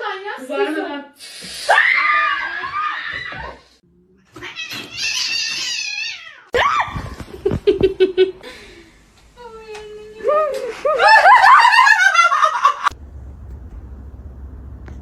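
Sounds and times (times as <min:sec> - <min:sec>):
cat yowling: 0:04.3 - 0:06.8.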